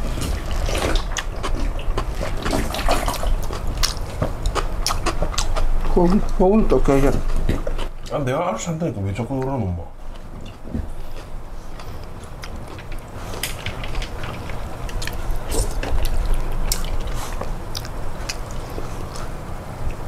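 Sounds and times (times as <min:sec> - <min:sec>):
chewing and biting: 0:00.0 - 0:08.2, 0:10.1 - 0:20.0
mouth clicks and smacks: 0:14.9 - 0:19.3.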